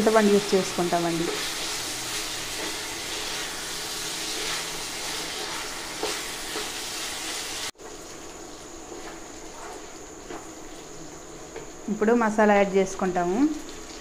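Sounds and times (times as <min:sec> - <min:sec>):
food frying in oil: 0:00.0 - 0:14.0
wooden spatula scraping: 0:01.0 - 0:07.7, 0:08.9 - 0:11.8.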